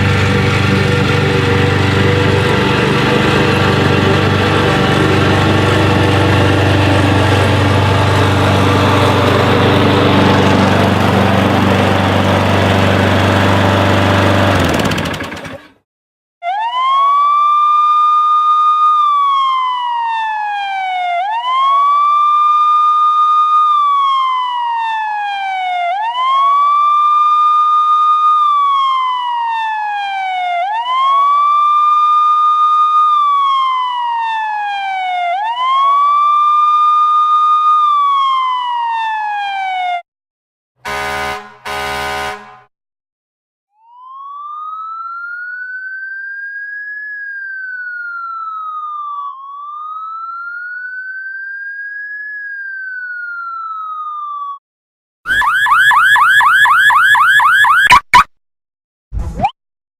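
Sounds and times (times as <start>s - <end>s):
siren wailing: 0.0s - 13.3s, 16.4s - 40.0s, 43.7s - 54.6s, 55.3s - 58.3s
short horn blasts: 40.8s - 42.7s.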